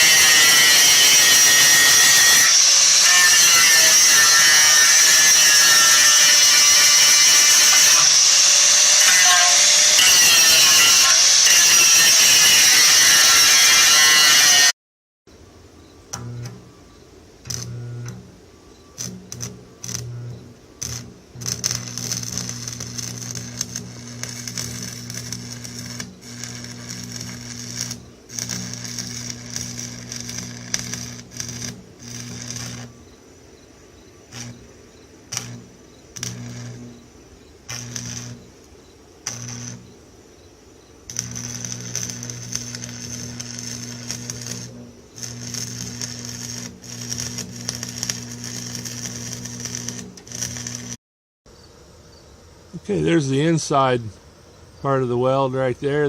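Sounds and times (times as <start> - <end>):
crackling welding arc: 0.0 - 14.7, 17.4 - 33.0, 34.2 - 40.0, 41.0 - 51.0
electrical hum: 15.4 - 51.0.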